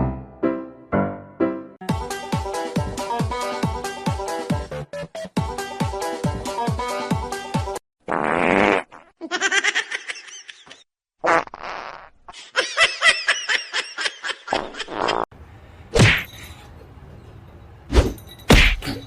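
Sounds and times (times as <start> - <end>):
person laughing: 12.3 - 15.2.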